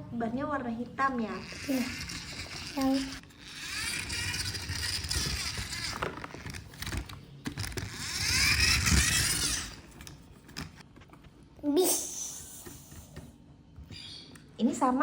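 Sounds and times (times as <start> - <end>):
toy truck wheels whirring: 1.2 - 10.8.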